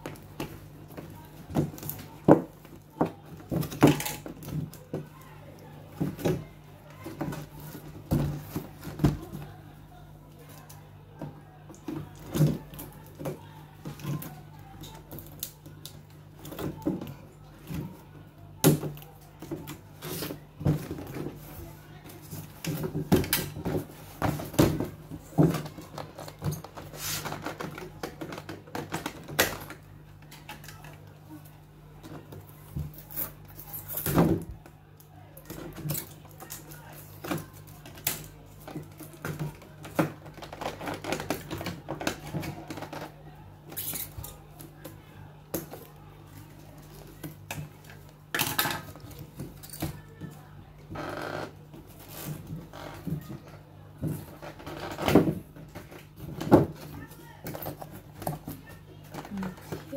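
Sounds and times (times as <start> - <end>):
cardboard and plastic packaging rustling: 0.0 - 59.9.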